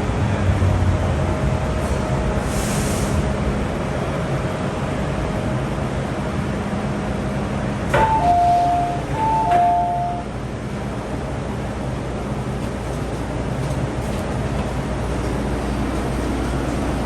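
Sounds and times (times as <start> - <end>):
train cabin rumble: 0.0 - 17.0
two-tone chime: 8.0 - 10.2.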